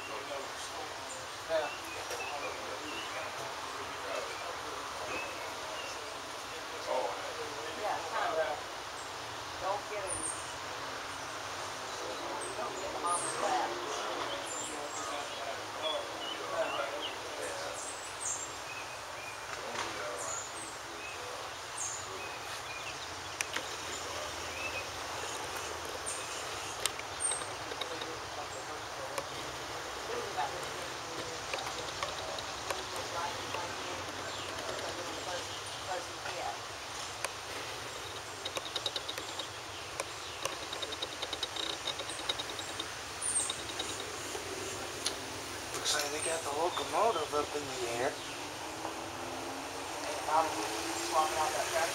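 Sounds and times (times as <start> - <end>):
small birds chirping: 0.0 - 51.9
insect chirping pulses: 37.7 - 45.7
high falling chirp: 37.9 - 44.8
sharp clicks: 38.0 - 44.4.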